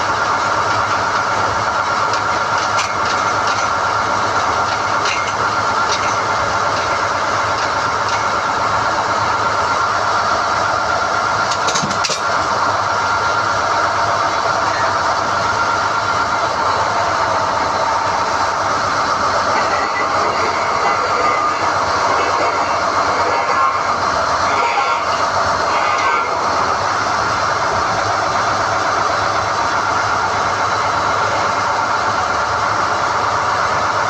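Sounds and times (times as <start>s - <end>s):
drilling rig whining: 0.0s - 34.0s
metallic clatter: 2.0s - 8.4s, 11.4s - 12.5s.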